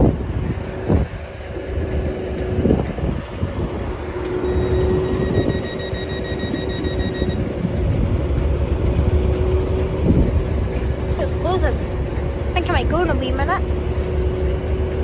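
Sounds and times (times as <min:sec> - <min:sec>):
diesel train engine rumble: 0:00.0 - 0:15.0
rapid high-pitched beeping: 0:03.8 - 0:08.0.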